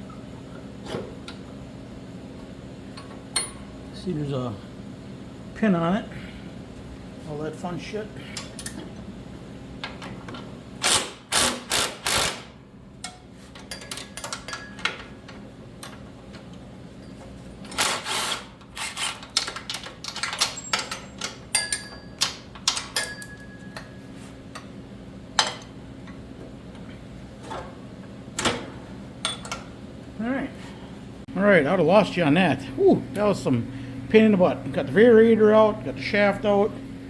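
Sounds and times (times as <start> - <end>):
faint steady hum: 0.0 - 37.0
metal parts and tools clinking: 18.8 - 23.9.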